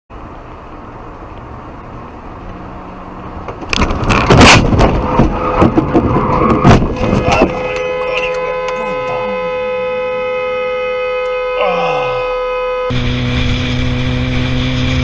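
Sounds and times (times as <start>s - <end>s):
road noise: 0.1s - 15.0s
knocks and crunches: 3.5s - 7.8s
car crash impact: 3.6s - 7.7s.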